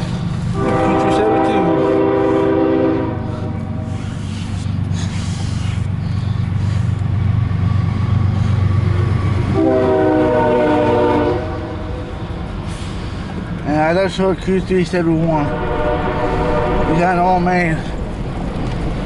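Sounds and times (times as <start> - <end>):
locomotive engine rumbling: 0.0 - 19.0
locomotive air horn blasts: 0.5 - 4.2, 9.5 - 12.1, 15.4 - 17.4.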